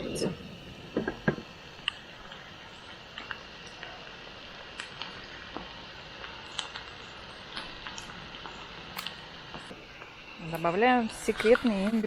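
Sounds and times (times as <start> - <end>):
vegetables sizzling in oil: 0.0 - 12.0
oil crackling: 1.4 - 10.8.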